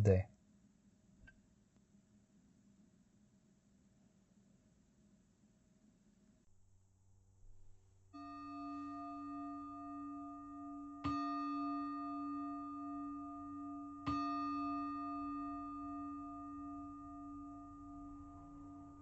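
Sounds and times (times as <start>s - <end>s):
singing bowl ringing: 8.1s - 19.0s.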